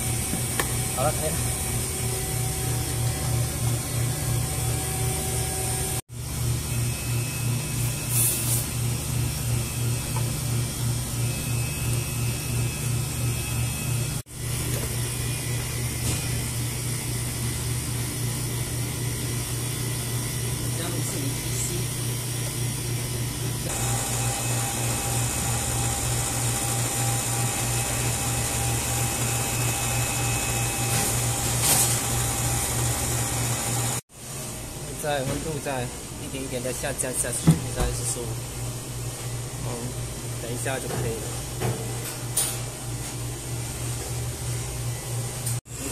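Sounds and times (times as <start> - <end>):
compressor pulsing hum: 0.0 - 45.9
brief hiss: 8.1 - 8.7.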